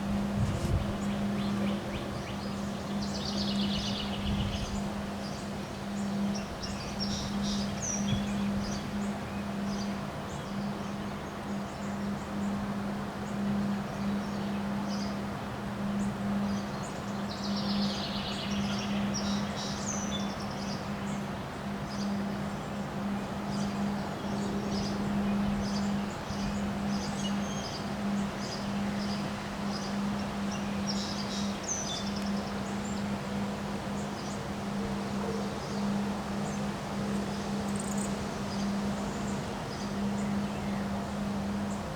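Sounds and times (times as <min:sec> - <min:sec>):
wind rushing: 0:00.0 - 0:01.2
bird trill: 0:23.5 - 0:41.9.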